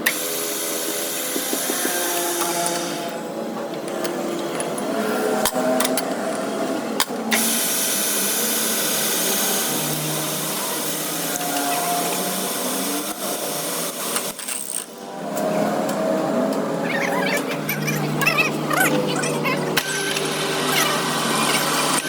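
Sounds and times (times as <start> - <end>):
power tool hissing on metal: 0.0 - 3.2
sharp clicks and knocks: 0.8 - 2.9.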